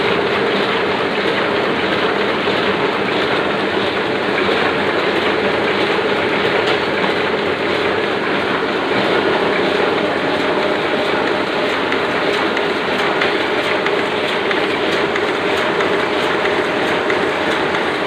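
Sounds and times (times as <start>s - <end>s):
printing press clattering: 0.0s - 18.0s
printing press hum: 0.0s - 18.0s.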